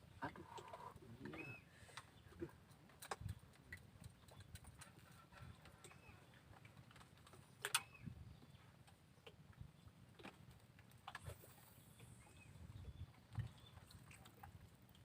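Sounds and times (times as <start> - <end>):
faint sharp clicks and knocks: 2.7 - 12.2.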